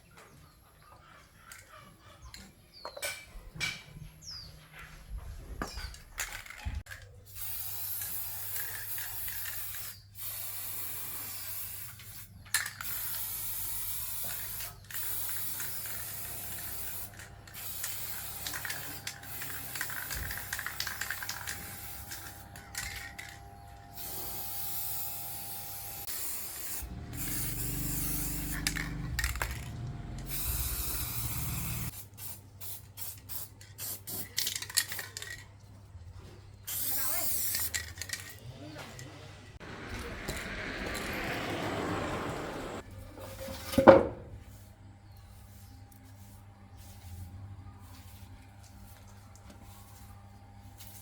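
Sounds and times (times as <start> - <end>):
hissing spray bursts: 7.2 - 34.4, 36.7 - 37.8, 44.4 - 51.0.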